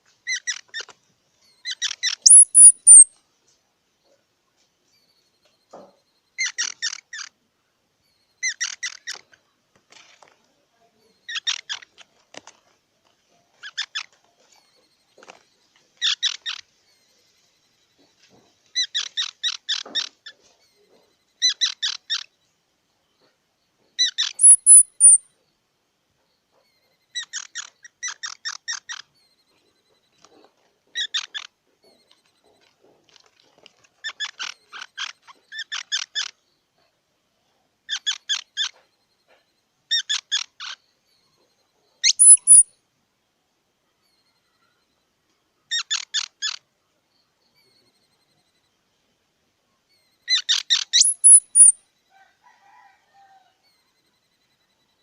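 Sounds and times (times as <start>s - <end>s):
squirrel chattering: 1.6s - 3.1s, 6.4s - 7.3s, 11.2s - 12.0s, 21.4s - 22.3s, 24.0s - 25.2s, 31.0s - 32.1s, 34.1s - 36.4s, 39.9s - 40.8s, 42.0s - 42.6s, 45.7s - 46.7s, 50.3s - 51.8s
squirrel high squeal: 1.6s - 3.1s, 24.0s - 25.2s, 42.0s - 42.7s, 49.9s - 51.8s.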